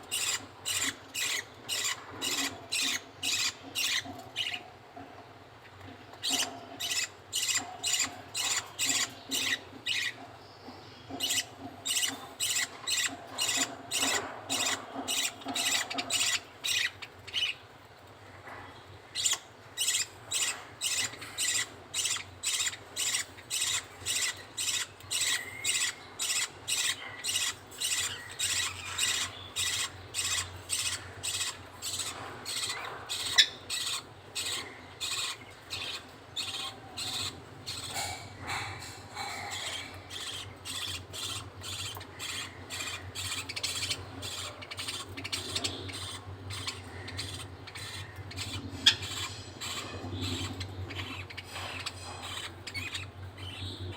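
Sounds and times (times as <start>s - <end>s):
budgerigar chick begging calls: 19.2s - 53.7s.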